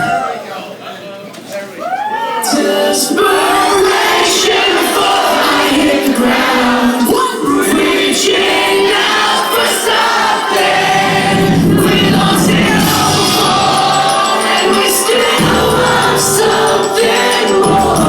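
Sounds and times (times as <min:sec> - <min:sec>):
sung vocals: 0:02.4 - 0:18.0
distorted guitars: 0:07.7 - 0:18.0
drums and crashing cymbals: 0:08.1 - 0:18.0.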